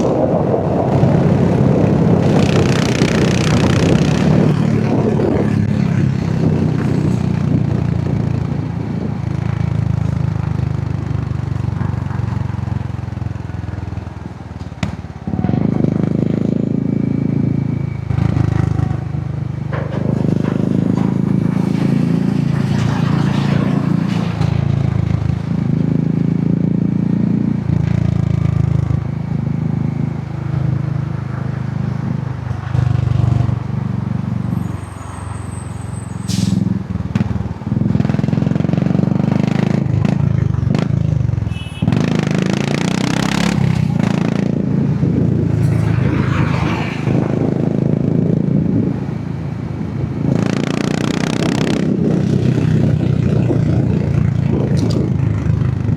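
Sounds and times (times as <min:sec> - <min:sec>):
motorcycle engine riding: 0:00.0 - 0:55.9
rushing noise: 0:20.1 - 0:25.7, 0:41.6 - 0:49.3.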